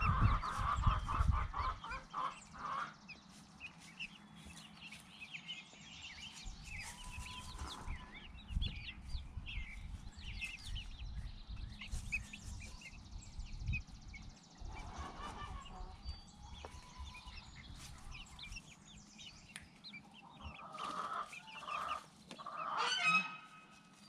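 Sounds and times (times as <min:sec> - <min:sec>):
chickens clucking and calling: 0:00.0 - 0:24.0
small birds chirping: 0:00.0 - 0:24.0.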